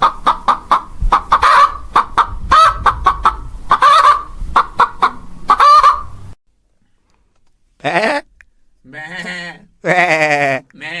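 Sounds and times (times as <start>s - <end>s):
chickens clucking: 0.0s - 6.3s.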